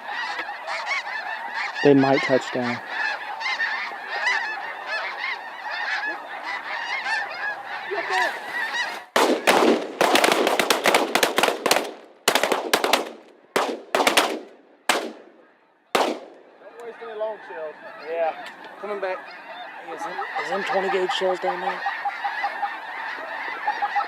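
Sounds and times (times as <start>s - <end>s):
geese honking: 0.0s - 24.0s
shotgun fire: 9.2s - 15.4s, 16.0s - 16.4s.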